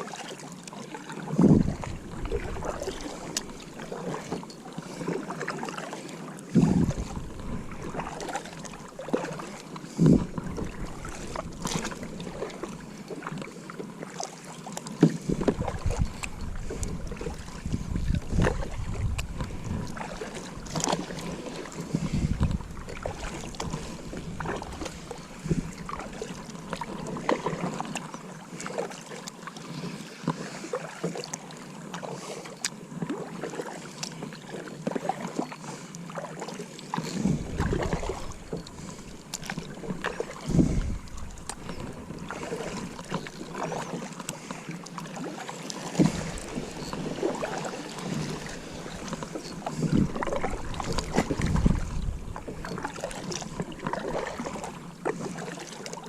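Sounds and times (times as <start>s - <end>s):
kayak paddle splashing: 0.0s - 56.0s
wind rumble on microphone: 1.3s - 3.8s, 6.5s - 8.2s, 9.9s - 12.3s, 15.2s - 21.0s, 21.9s - 26.2s, 37.2s - 38.8s, 39.5s - 42.5s, 48.2s - 53.1s
paddle knocking against hull: 45.8s - 54.7s.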